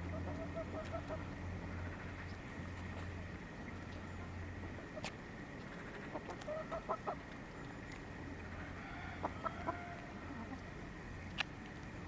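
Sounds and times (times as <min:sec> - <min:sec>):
hens clucking softly: 0:00.0 - 0:03.1, 0:03.7 - 0:07.8, 0:08.4 - 0:11.4
steady low hum: 0:00.0 - 0:12.0.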